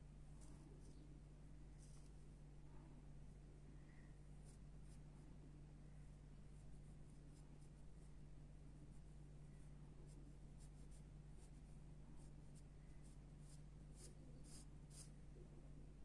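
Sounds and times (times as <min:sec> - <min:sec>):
low steady hum: 0:00.0 - 0:16.0
pencil scratching on paper: 0:01.8 - 0:02.1, 0:10.2 - 0:15.2.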